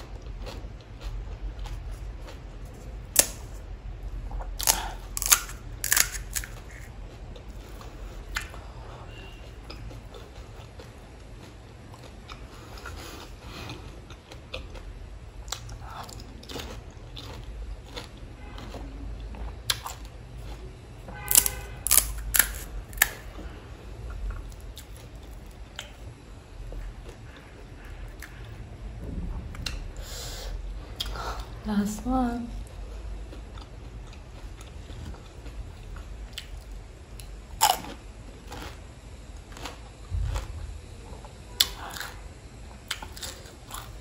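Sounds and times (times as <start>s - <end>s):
crunching and chewing crisp shells: 0.0s - 29.9s, 32.6s - 44.0s.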